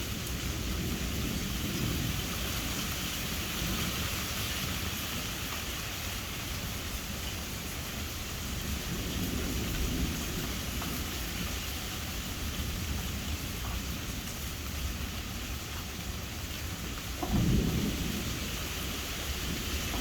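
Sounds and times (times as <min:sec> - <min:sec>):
low rolling thunder: 0:00.0 - 0:04.0, 0:08.4 - 0:14.2, 0:16.7 - 0:20.0
steady rain: 0:00.0 - 0:20.0.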